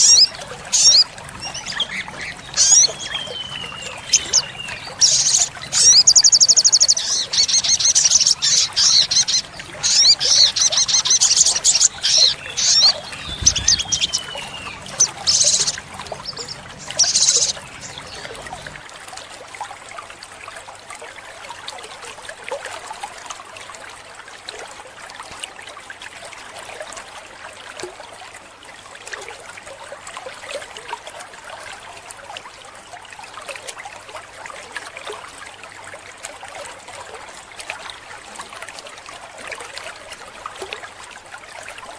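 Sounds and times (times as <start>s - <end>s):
bird trilling and chattering: 0.0s - 18.3s
trickle of running water: 0.0s - 41.9s.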